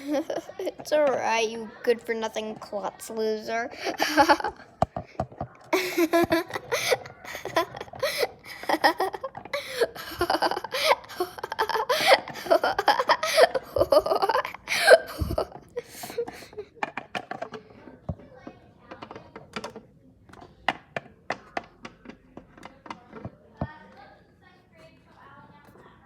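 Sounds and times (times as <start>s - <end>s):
person laughing hard: 3.8s - 4.6s, 5.8s - 16.7s.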